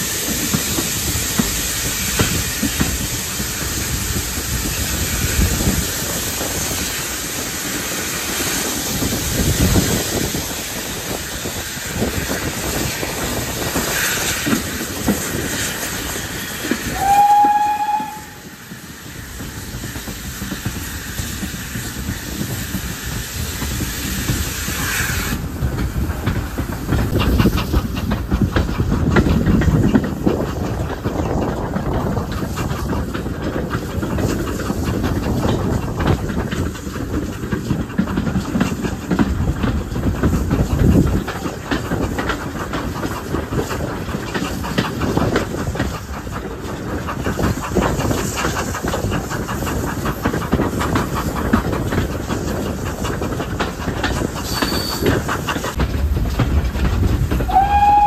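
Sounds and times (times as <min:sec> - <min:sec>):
loud steam hiss: 0:00.0 - 0:31.5, 0:32.1 - 0:58.0
locomotive engine rumbling: 0:00.0 - 0:58.0
wheels clattering over rail joints: 0:25.4 - 0:58.0.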